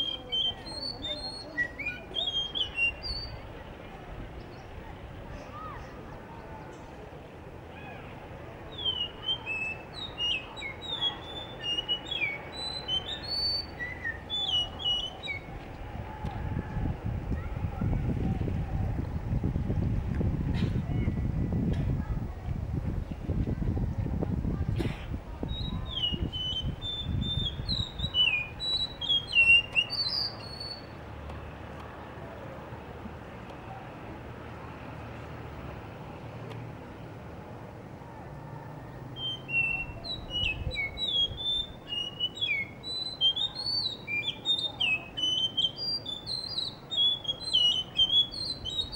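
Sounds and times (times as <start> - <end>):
thrush singing whistled notes: 0.0 - 3.5, 8.7 - 15.5, 25.5 - 31.0, 39.1 - 48.9.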